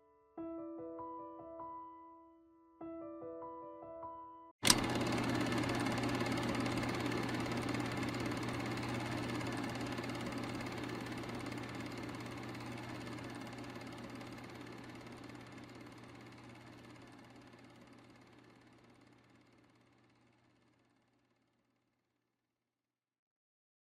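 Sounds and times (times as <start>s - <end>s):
click: 4.6s - 5.1s.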